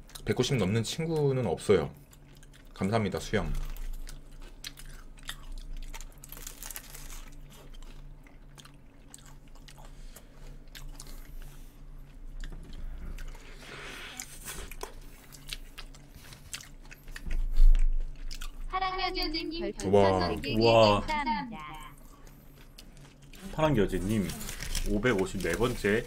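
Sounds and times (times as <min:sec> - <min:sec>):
crunchy biting and chewing: 0:02.0 - 0:18.7.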